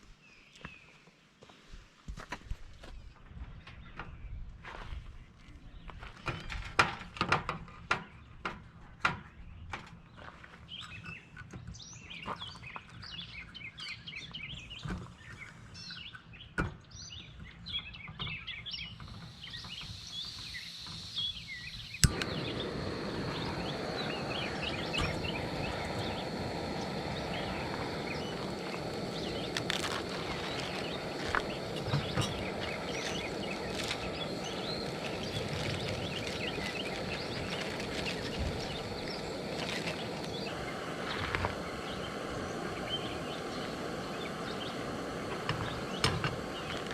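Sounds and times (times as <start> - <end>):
small birds chirping: 9.2 - 46.9
steady rushing noise: 22.0 - 46.9.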